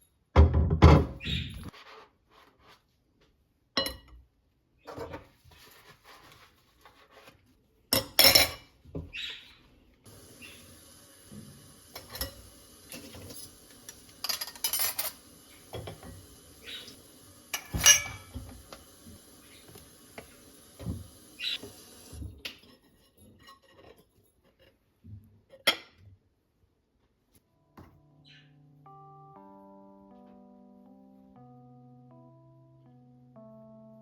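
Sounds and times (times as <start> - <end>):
dishes and utensils clinking: 7.9 - 8.8, 11.3 - 24.8
faint steady hiss: 10.0 - 22.6.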